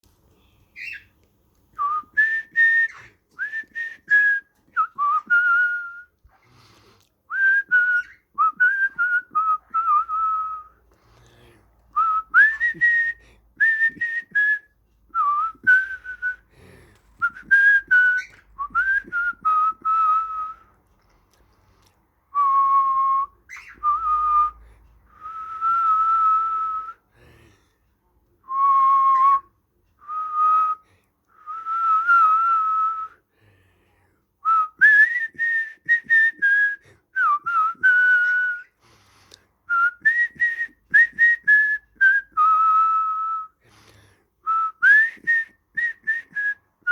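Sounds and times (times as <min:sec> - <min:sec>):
person whistling: 0:01.8 - 0:06.2, 0:12.0 - 0:16.4, 0:17.2 - 0:20.6, 0:22.3 - 0:27.0, 0:28.5 - 0:33.2, 0:34.4 - 0:38.8, 0:39.7 - 0:43.6, 0:44.4 - 0:46.9.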